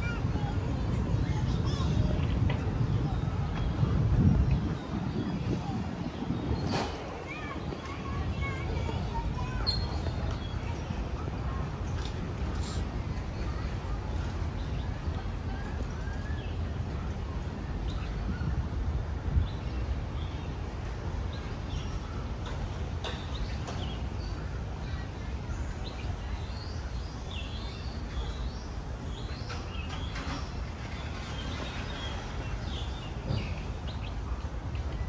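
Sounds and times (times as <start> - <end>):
small birds chirping: 0.0 - 18.6, 19.3 - 35.0.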